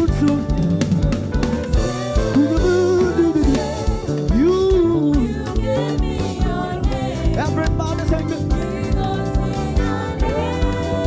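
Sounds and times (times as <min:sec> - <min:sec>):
person singing long notes: 0:00.0 - 0:05.9
band with drums and bass: 0:00.0 - 0:11.0.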